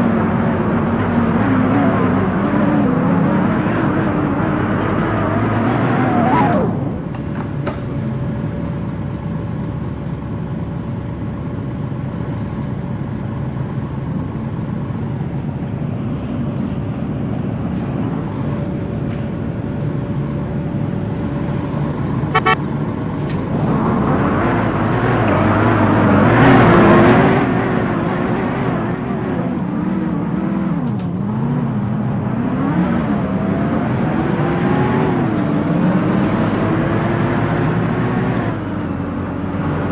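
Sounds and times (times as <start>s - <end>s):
bus engine: 0.0s - 39.9s
faint steady tone: 22.4s - 22.6s.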